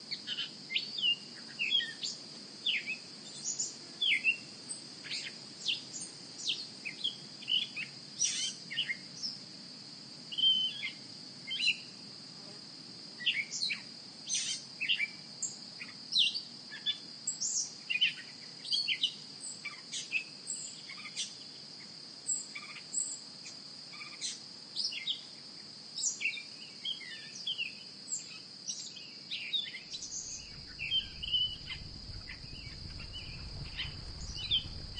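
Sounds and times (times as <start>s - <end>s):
small birds chirping: 0.1s - 9.4s, 26.0s - 34.9s
steady high-pitched hum: 29.9s - 34.9s.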